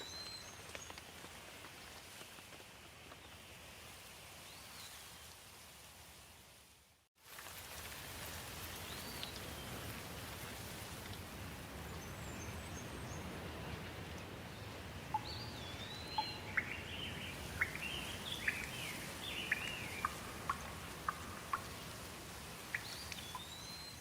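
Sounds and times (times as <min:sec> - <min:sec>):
steady rain falling: 0:00.0 - 0:24.0
bird calling and chirping: 0:15.1 - 0:21.8, 0:22.6 - 0:24.0.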